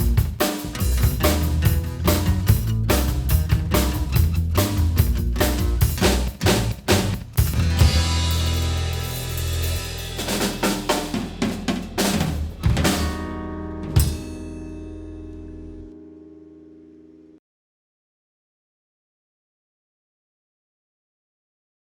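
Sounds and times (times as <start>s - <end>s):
drum fills with snare: 0.0s - 14.4s
rock band playing: 0.0s - 15.9s.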